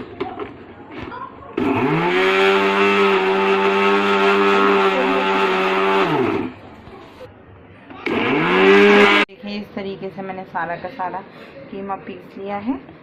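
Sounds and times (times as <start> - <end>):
mixer grinder motor grinding: 1.6 - 6.6, 8.0 - 9.3.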